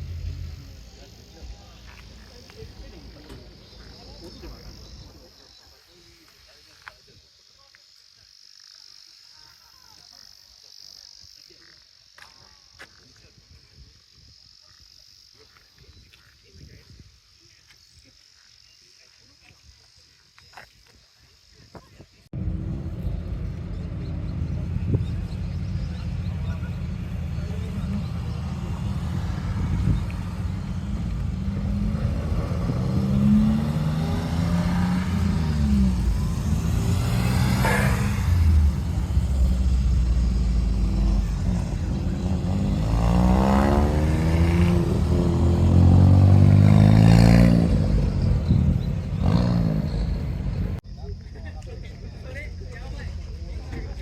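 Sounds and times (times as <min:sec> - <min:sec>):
car engine pulling away: 0:00.0 - 0:05.6, 0:22.4 - 0:50.8.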